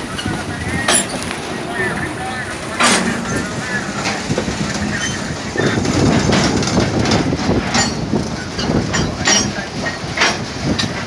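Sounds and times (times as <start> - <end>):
steel wheels rumbling on rails: 0.0 - 11.0
sharp metallic clanks: 0.1 - 1.5, 2.7 - 11.0.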